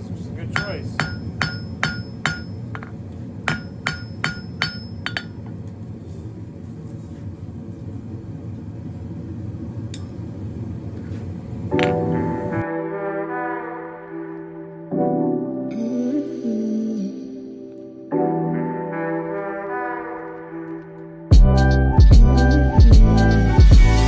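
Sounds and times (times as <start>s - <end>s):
steady low hum: 0.0s - 12.6s
hammer ringing on steel: 0.6s - 5.4s
music: 11.8s - 24.0s.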